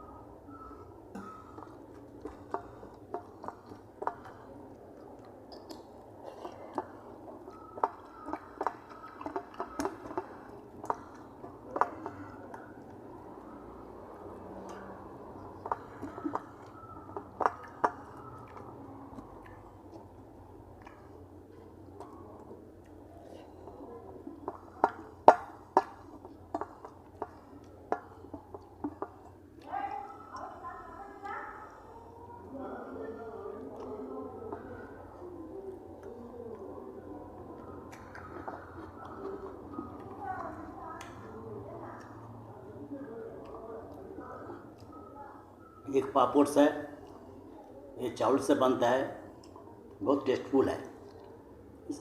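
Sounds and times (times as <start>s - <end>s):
person chewing: 0.5s - 30.4s, 33.6s - 45.0s
wet mouth clicks and smacks: 0.6s - 29.7s, 35.9s - 41.4s.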